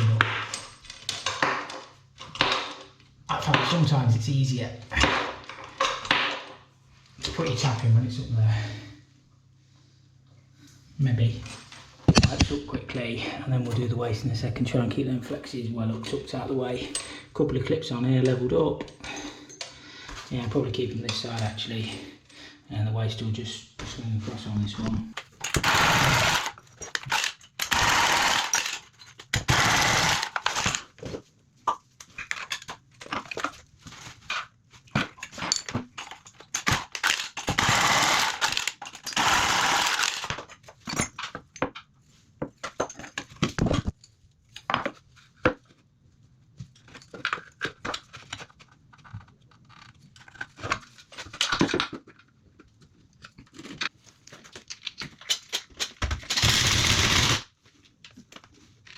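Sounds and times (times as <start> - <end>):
harsh power tool noise: 25.5 - 30.8, 36.7 - 40.4, 56.3 - 57.4.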